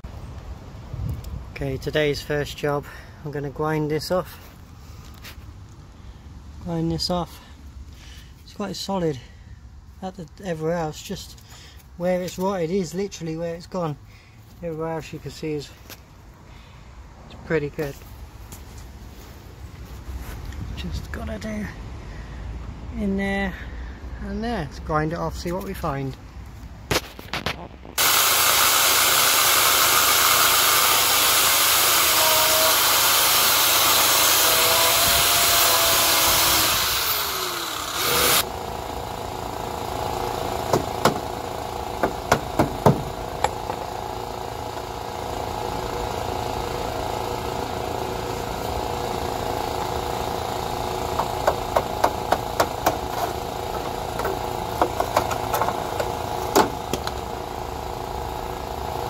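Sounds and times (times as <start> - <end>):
angle grinder grinding steel: 28.0 - 42.5.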